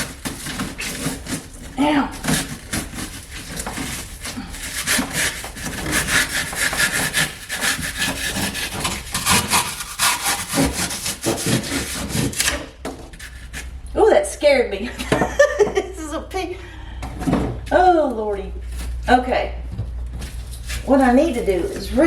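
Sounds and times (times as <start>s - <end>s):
hand saw rasping through foam: 0.0s - 13.7s, 20.6s - 22.0s.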